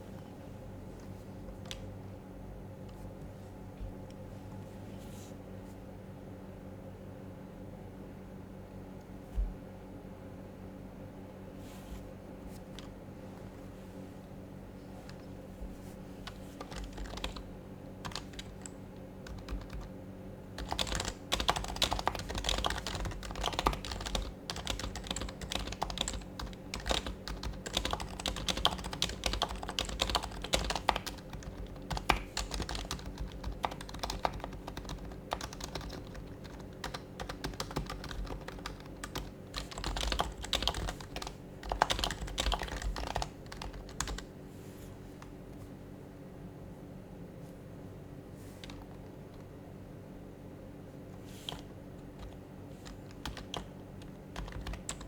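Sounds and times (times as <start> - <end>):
faint steady hum: 0.0 - 55.0
keyboard typing soft thocks: 1.0 - 1.9, 15.0 - 19.9, 20.6 - 44.3, 48.6 - 49.5, 51.2 - 55.0.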